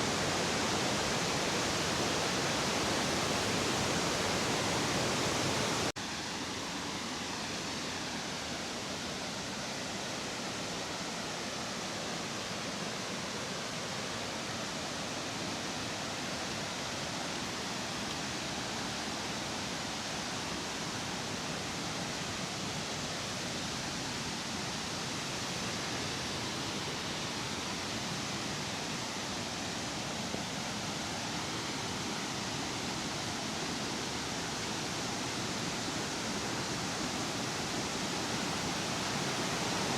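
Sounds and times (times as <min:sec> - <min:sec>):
waterfall rushing: 0:00.0 - 0:06.6, 0:16.2 - 0:39.9.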